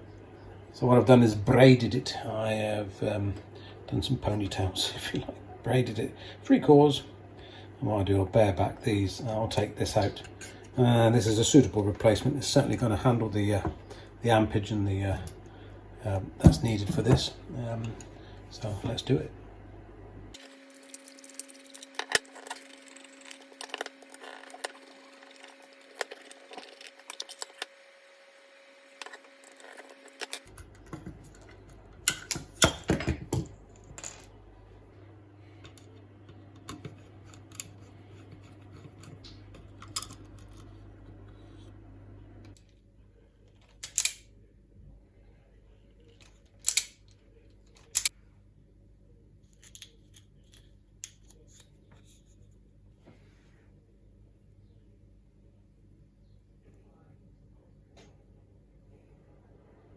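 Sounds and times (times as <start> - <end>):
low steady hum: 0.0 - 59.9
hand tools clicking and snipping: 43.8 - 44.2, 46.6 - 47.0, 47.8 - 48.1.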